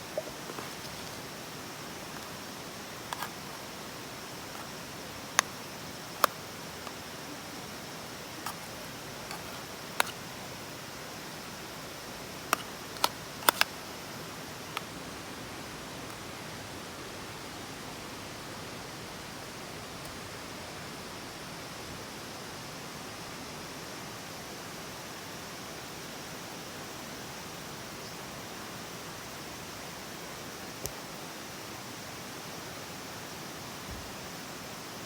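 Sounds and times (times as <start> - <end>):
campfire hissing: 0.0 - 15.0
steady background hiss: 0.0 - 35.0.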